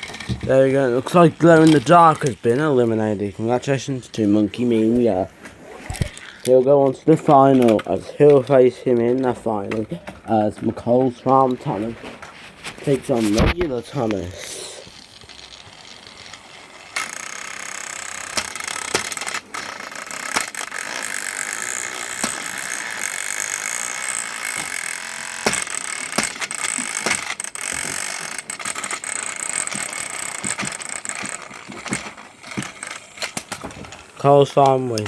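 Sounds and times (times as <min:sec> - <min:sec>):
rapid clicking and rattling: 0:00.0 - 0:05.1, 0:05.9 - 0:35.0
toy train motors whirring: 0:00.0 - 0:35.0.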